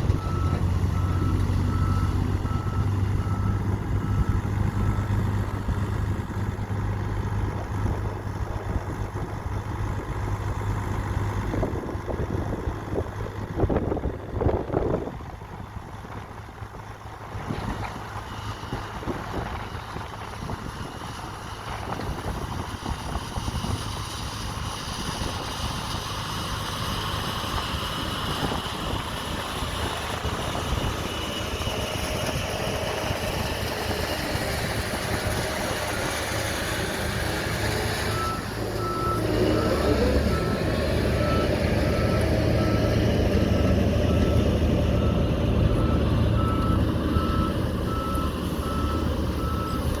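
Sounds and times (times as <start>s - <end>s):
reversing alarm beeping: 0.0s - 5.2s, 38.0s - 50.0s
heavy diesel engine running: 0.0s - 50.0s.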